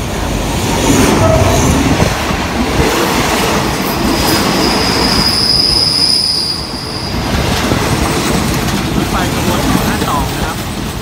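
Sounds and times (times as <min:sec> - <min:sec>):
wheels rumbling on rails: 0:00.0 - 0:11.0
high wheel squeal: 0:04.2 - 0:07.4
fainter higher squeal: 0:04.3 - 0:07.3.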